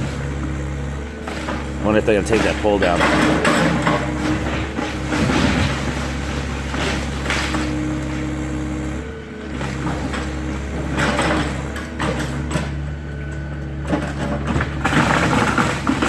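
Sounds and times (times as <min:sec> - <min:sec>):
debris crunching and scraping: 0:00.0 - 0:12.8, 0:13.9 - 0:16.0
excavator diesel engine running: 0:00.0 - 0:16.0.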